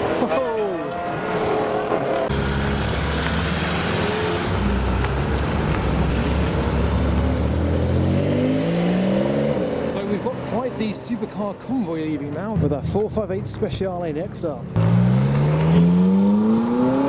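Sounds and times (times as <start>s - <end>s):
loud car engine passing: 0.9s - 11.1s, 14.6s - 17.0s.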